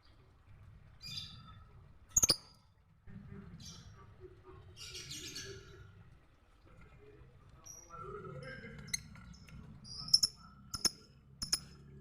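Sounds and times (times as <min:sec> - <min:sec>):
lovebird chirping and chattering: 0:02.2 - 0:02.5, 0:08.8 - 0:11.7.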